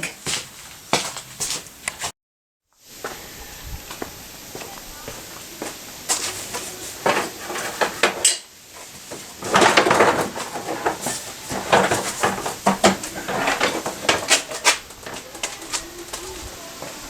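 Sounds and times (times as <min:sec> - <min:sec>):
metal tools clinking and rattling: 0:09.4 - 0:16.4.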